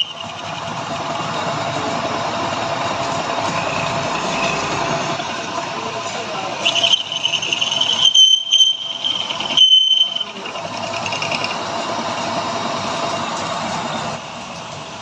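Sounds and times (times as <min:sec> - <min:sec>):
cutting tool squealing: 0:00.0 - 0:01.5, 0:03.4 - 0:05.1, 0:06.6 - 0:12.4
lathe running: 0:00.0 - 0:15.0.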